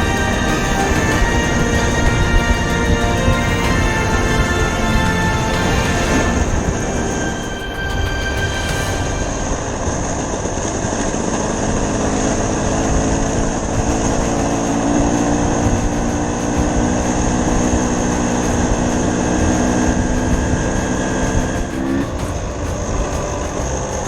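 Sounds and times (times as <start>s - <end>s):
rushing noise: 0.0s - 24.0s
dirt bike engine running: 10.9s - 24.0s.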